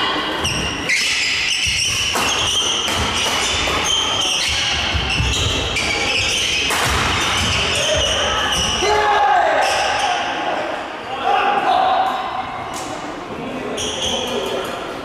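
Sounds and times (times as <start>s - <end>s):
sneakers squeaking on court floor: 0.3s - 8.8s.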